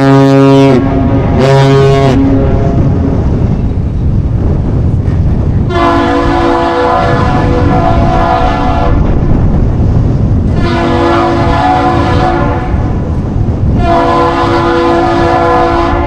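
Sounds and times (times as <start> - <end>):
deep air horn blasts: 0.0 - 3.3, 5.7 - 9.3, 10.5 - 16.0
steady low rumble: 0.0 - 16.0.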